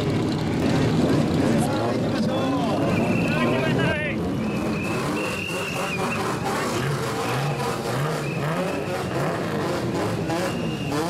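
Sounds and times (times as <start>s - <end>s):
car engine revving: 0.0s - 11.0s
shrill whistle blasts: 4.4s - 6.4s, 7.2s - 9.4s, 10.4s - 11.0s.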